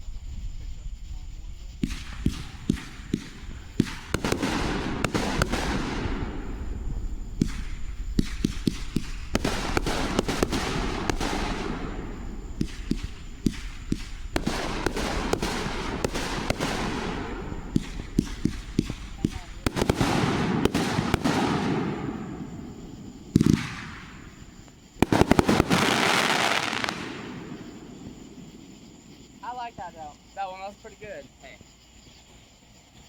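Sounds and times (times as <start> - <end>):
fireworks popping and crackling: 0.0 - 33.0.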